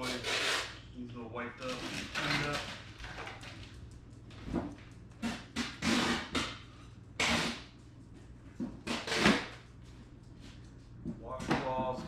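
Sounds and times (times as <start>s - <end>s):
packaging rustling and scraping: 1.6s - 3.7s.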